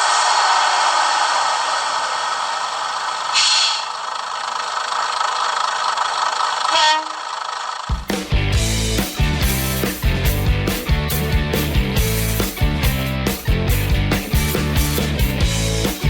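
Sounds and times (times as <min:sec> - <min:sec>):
train running noise: 0:00.0 - 0:16.0
rock music with guitar: 0:07.9 - 0:16.0.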